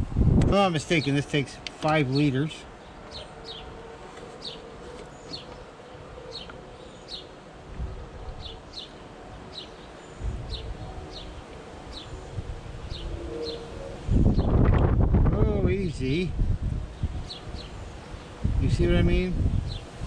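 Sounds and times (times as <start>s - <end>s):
wind gusts on microphone: 0.0s - 1.1s, 7.1s - 8.9s, 9.5s - 20.0s
bird chirping: 2.2s - 7.4s, 8.3s - 14.6s, 16.9s - 18.4s.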